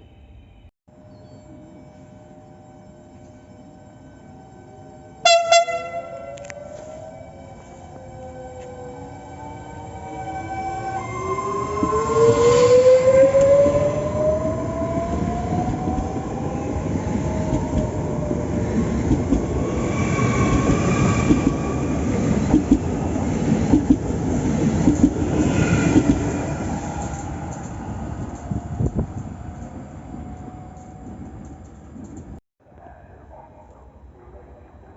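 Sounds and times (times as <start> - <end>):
electric train motors whining: 6.2 - 7.8.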